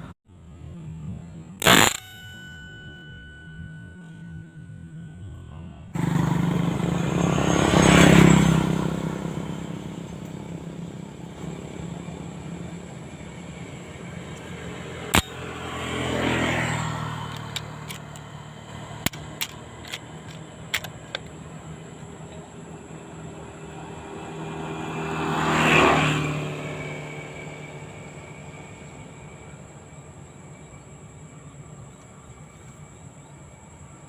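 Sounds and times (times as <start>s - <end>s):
sharp crack: 1.6s - 3.4s, 15.1s - 15.8s
motor engine passing by: 5.3s - 20.6s, 21.4s - 30.0s.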